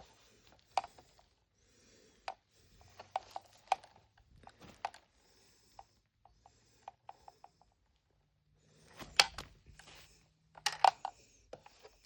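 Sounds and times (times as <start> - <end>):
plastic toy pieces clicking: 10.6 - 11.2.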